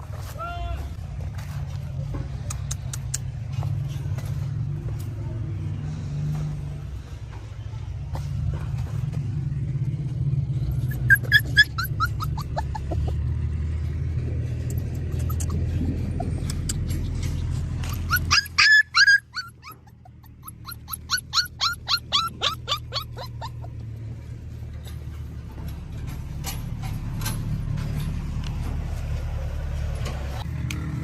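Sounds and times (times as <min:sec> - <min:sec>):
traffic rumble: 0:00.0 - 0:31.0
puppy yelping and whimpering: 0:10.8 - 0:13.3, 0:14.8 - 0:23.9.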